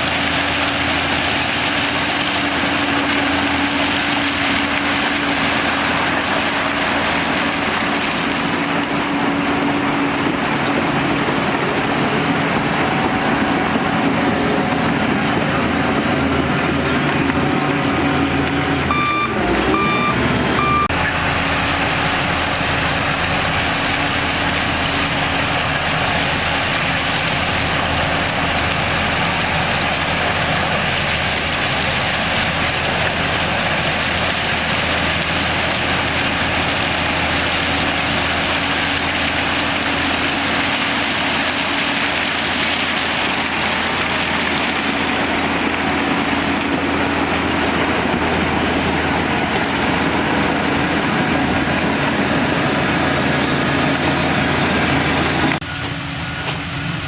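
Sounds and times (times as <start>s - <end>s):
bulldozer diesel engine running: 0.0s - 57.0s
reversing alarm beeping: 18.9s - 21.0s.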